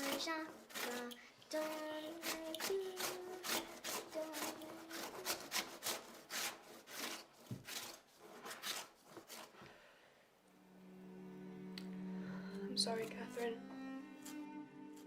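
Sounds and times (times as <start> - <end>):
faint singing: 0.0 - 5.8
rhythmic scraping strokes: 0.0 - 9.5, 12.0 - 15.0.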